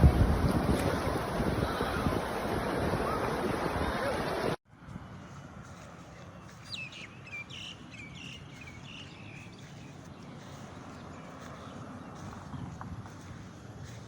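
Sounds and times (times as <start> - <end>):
bird chirping: 6.0 - 12.8.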